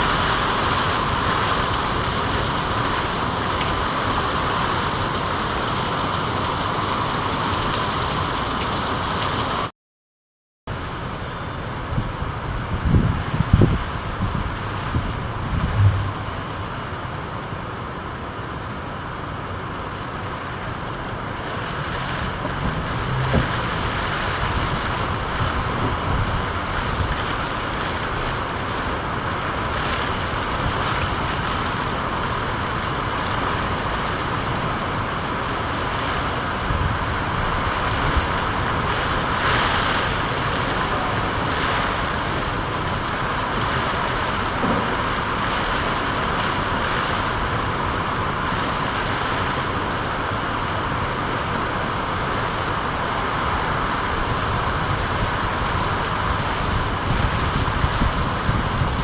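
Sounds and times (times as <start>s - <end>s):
steady rainfall: 0.0s - 9.7s, 10.7s - 59.0s
brief low thud: 15.6s - 16.4s, 44.6s - 45.0s.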